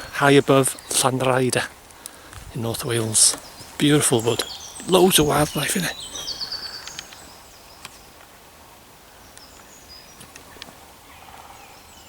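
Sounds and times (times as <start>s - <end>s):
songbirds chirping: 0.0s - 12.0s
bird trill: 2.7s - 8.1s
sharp ticks: 6.8s - 7.2s.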